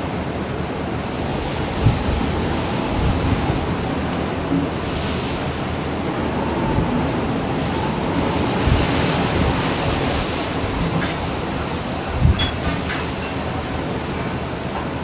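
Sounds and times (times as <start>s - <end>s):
rough sea: 0.0s - 15.0s
wind rushing over microphone: 0.9s - 12.9s.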